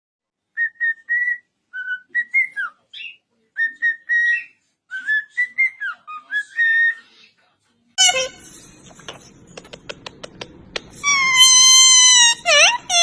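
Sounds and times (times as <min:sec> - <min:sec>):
parrot whistling a tune: 0:00.6 - 0:07.0, 0:11.0 - 0:13.0.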